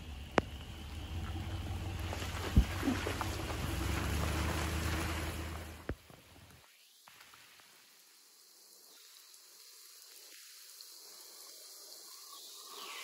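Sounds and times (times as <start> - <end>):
faint rain falling: 0.0 - 13.0.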